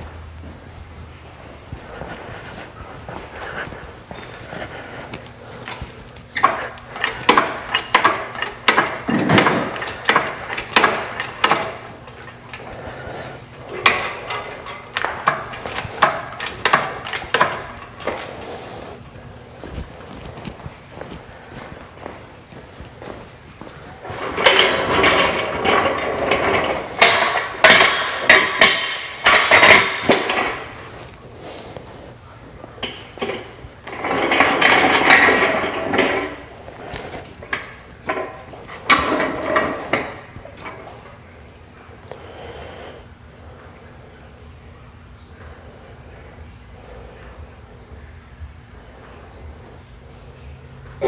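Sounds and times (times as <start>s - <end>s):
metal objects clanking: 5.5s - 18.9s, 19.7s - 31.1s, 32.7s - 41.2s.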